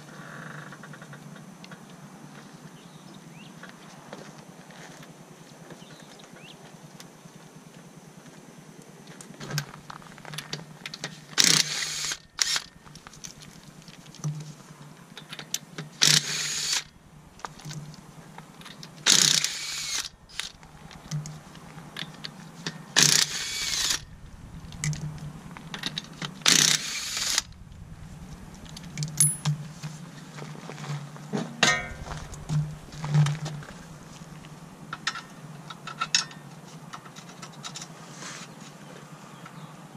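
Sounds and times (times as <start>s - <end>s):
impact wrench hammering: 29.0s - 29.6s, 31.6s - 33.8s
metallic clicks of hand tools: 29.0s - 29.6s.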